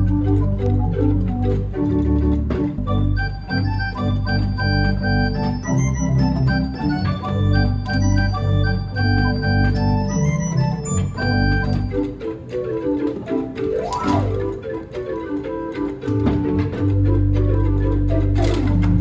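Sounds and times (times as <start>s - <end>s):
deep organ pedal bass: 0.0s - 12.0s, 16.2s - 19.0s
pipe organ chords: 0.0s - 12.3s.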